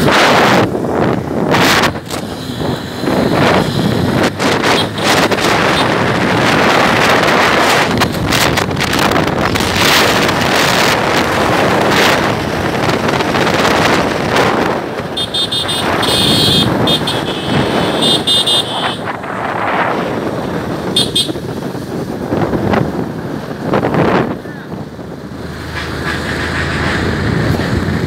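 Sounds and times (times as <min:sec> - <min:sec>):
wind rushing over microphone: 0:00.0 - 0:28.0
vehicle horn beeping: 0:04.6 - 0:06.0, 0:15.1 - 0:19.1, 0:20.9 - 0:21.4.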